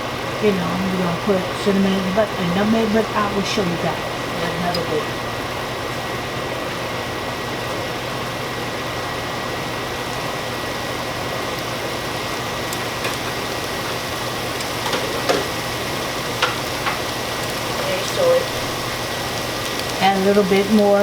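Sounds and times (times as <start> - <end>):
exhaust fan motor hum: 0.0 - 21.0
food cooking in a pan: 0.0 - 21.0.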